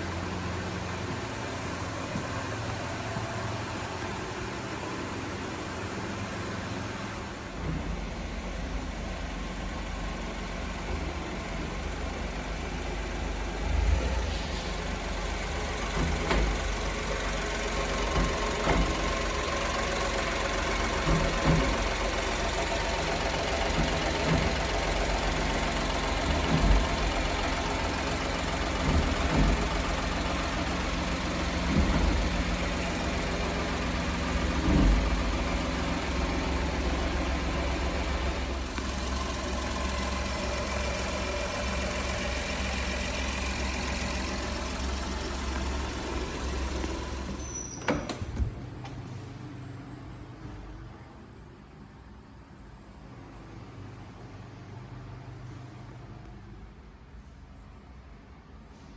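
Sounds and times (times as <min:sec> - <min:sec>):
small truck engine idling: 0:00.0 - 0:51.2
dull low thump: 0:07.5 - 0:09.1, 0:28.6 - 0:30.4, 0:31.4 - 0:32.8, 0:33.7 - 0:35.9.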